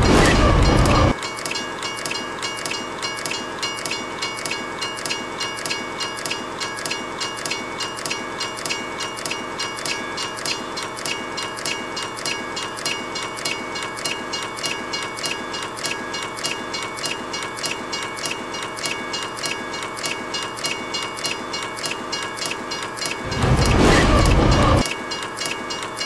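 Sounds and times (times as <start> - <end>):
loud low rumble: 0.0 - 1.1, 23.2 - 24.8
train wheels clacking on rails: 0.0 - 26.0.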